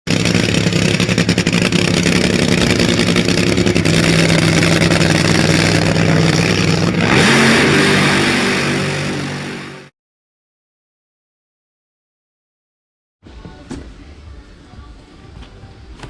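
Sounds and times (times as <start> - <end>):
race car engine running: 0.1 - 9.9.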